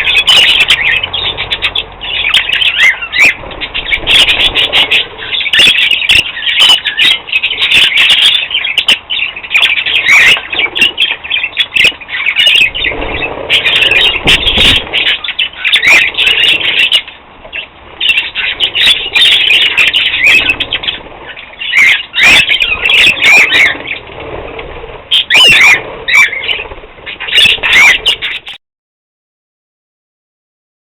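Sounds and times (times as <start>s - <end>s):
budgerigars chattering and chirping: 0.0s - 28.6s
wings flapping: 0.0s - 28.6s.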